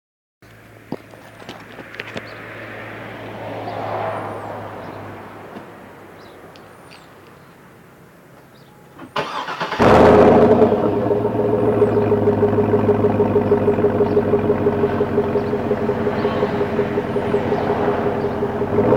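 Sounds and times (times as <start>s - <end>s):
car engine cranking and starting: 9.0s - 18.9s
engine running loudly: 9.8s - 18.9s.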